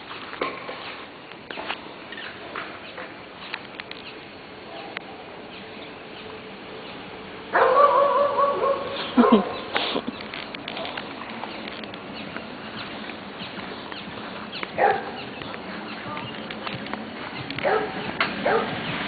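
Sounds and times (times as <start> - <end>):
faint ticks and rustles: 9.8 - 17.9.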